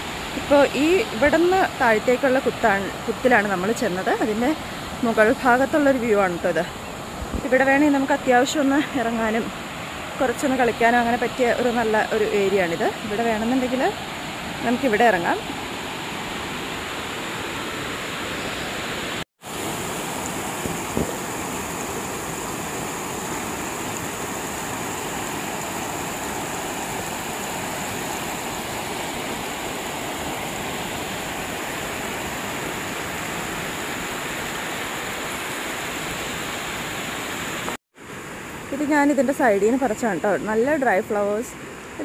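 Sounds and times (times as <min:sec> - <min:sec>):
water rushing over rocks: 0:07.1 - 0:38.6.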